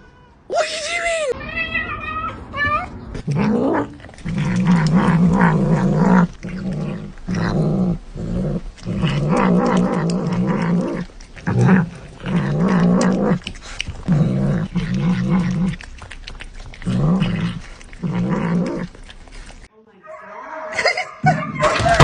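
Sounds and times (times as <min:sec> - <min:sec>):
pet growling: 0:03.1 - 0:19.7.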